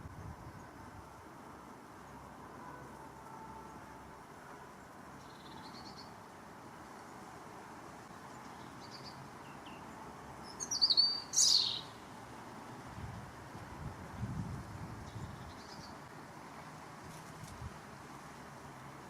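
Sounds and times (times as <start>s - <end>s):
outdoor background hiss: 0.0s - 19.0s
small birds chirping: 5.2s - 6.2s, 8.1s - 12.0s, 15.0s - 16.0s.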